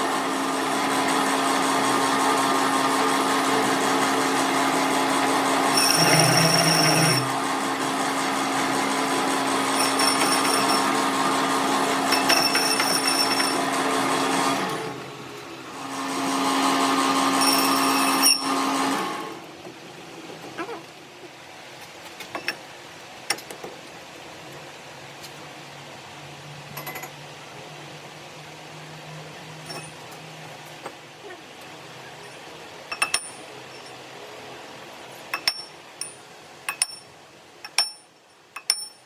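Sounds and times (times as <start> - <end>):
electric power tool whining: 0.1 - 15.1.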